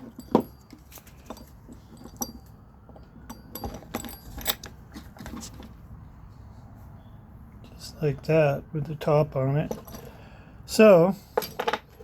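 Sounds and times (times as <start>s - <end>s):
clicks and knocks of handled parts: 0.0s - 5.8s, 9.6s - 10.2s, 11.3s - 12.0s.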